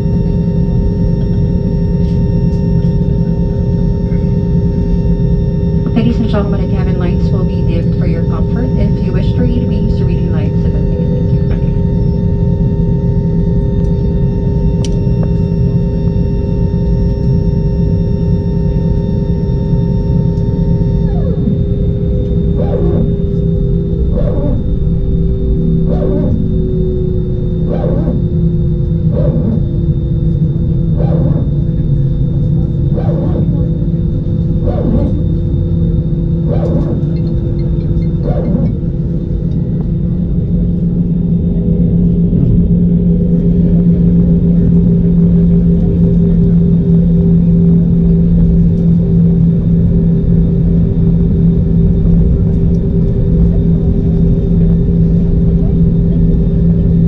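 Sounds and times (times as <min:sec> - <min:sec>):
aircraft cabin engine drone: 0:00.0 - 0:57.0
steady tones: 0:03.5 - 0:16.0.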